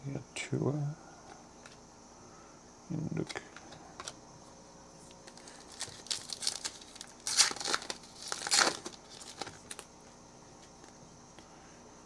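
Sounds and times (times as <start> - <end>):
foil wrapper crinkling and tearing: 5.2 - 9.9.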